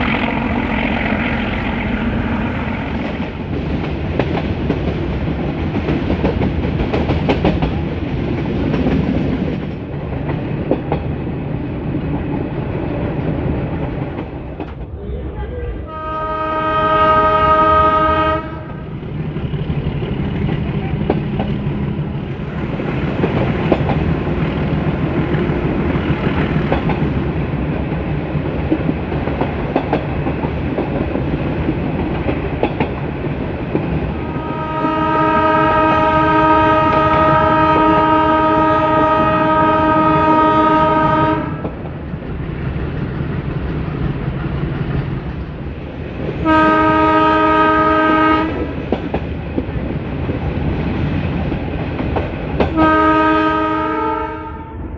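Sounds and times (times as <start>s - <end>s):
locomotive engine drone: 0.0s - 4.1s, 11.2s - 27.8s
wheels clicking over rail joints: 3.0s - 11.3s, 19.1s - 34.1s
locomotive horn blast: 15.8s - 18.9s, 34.2s - 41.7s, 46.4s - 48.6s, 52.7s - 54.9s.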